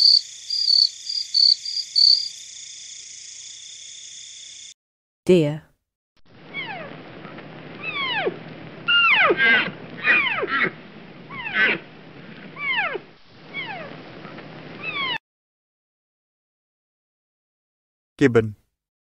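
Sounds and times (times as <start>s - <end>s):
deer calling: 7.8s - 11.8s.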